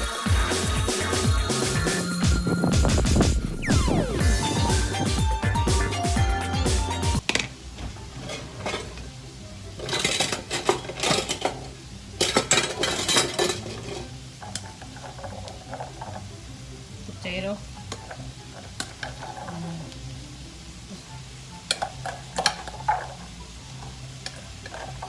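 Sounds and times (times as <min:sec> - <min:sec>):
faint sizzle of frying: 0:00.0 - 0:02.8, 0:03.9 - 0:25.0
music: 0:00.0 - 0:25.0
metal utensil scraping frying pan: 0:08.1 - 0:09.1, 0:09.8 - 0:16.3, 0:17.9 - 0:19.8, 0:21.7 - 0:23.4, 0:24.2 - 0:25.0.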